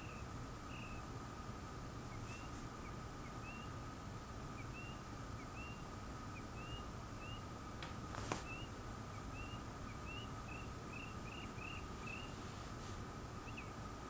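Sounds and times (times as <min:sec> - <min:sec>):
small bird chirping: 0:00.0 - 0:01.1, 0:02.0 - 0:03.8, 0:04.5 - 0:07.6, 0:08.2 - 0:12.4, 0:13.3 - 0:13.9
faint high whine: 0:00.0 - 0:14.0.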